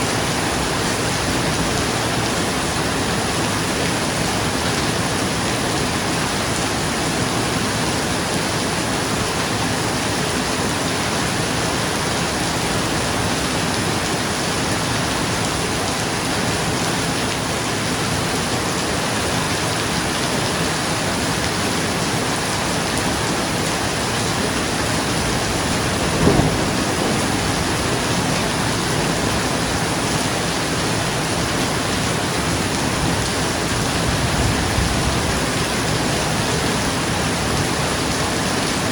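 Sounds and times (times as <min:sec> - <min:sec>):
rain on a roof: 0:00.0 - 0:38.9
thunder clap: 0:24.8 - 0:30.4.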